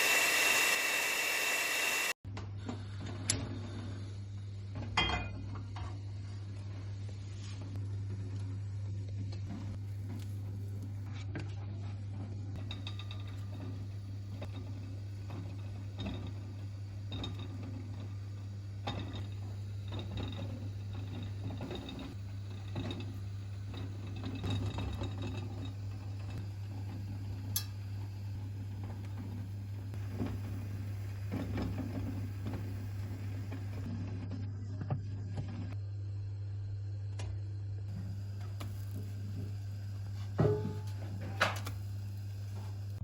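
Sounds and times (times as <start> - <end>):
steady low hum: 2.4 - 43.0.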